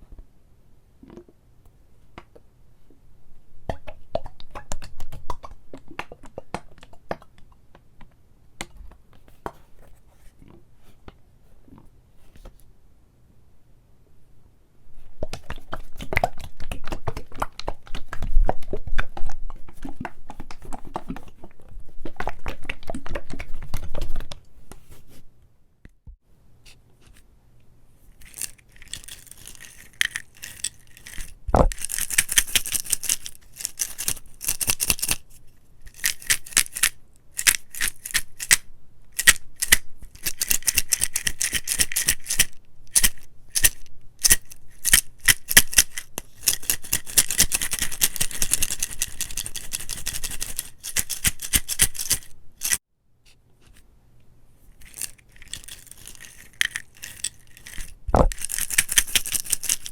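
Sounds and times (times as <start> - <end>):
object crinkling while handled: 28.0 - 52.8, 54.7 - 59.9.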